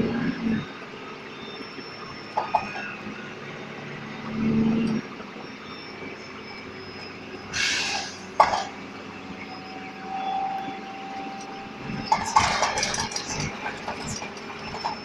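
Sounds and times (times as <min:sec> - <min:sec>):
bus engine running: 0:00.0 - 0:15.0
burst of hiss: 0:07.6 - 0:08.2.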